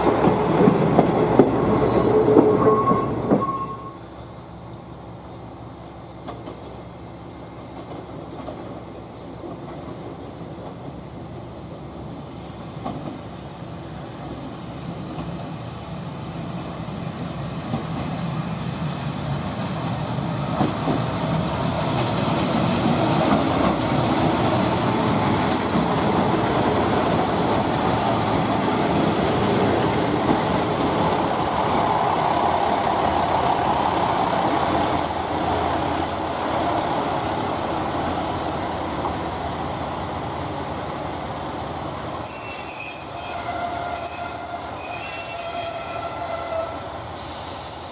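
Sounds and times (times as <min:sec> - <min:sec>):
train wheels on rails: 0:00.0 - 0:04.0, 0:05.8 - 0:47.9
high wheel squeals: 0:01.8 - 0:04.0, 0:29.7 - 0:32.2, 0:34.6 - 0:36.9, 0:40.2 - 0:47.9.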